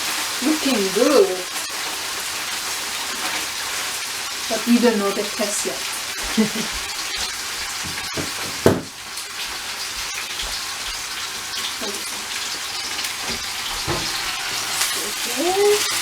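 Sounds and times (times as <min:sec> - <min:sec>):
stir-fry sizzling in a pan: 0:00.0 - 0:16.0
knocks on a pan: 0:07.8 - 0:09.0, 0:13.2 - 0:14.2.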